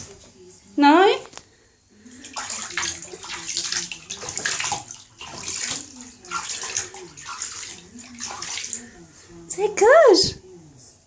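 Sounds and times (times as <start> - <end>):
bird splashing in water: 2.1 - 9.0.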